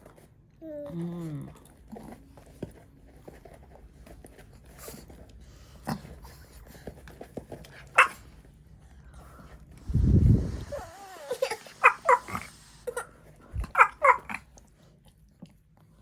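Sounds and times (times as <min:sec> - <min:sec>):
dog whining: 0:10.5 - 0:14.4.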